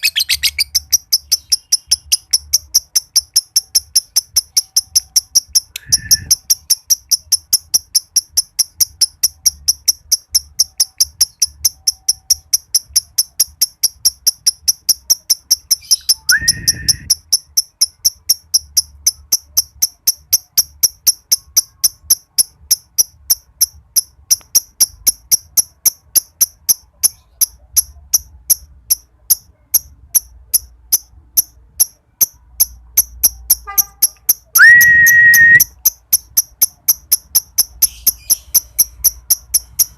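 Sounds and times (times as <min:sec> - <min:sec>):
lovebird chattering: 0:00.0 - 0:39.9
short rising whistle: 0:05.8 - 0:06.4, 0:16.3 - 0:17.1, 0:34.6 - 0:35.7.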